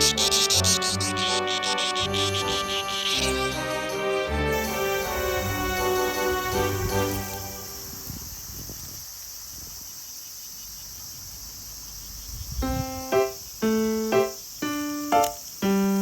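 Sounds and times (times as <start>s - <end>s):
piano notes: 0.0s - 7.9s, 12.6s - 16.0s
cicadas buzzing: 0.0s - 16.0s.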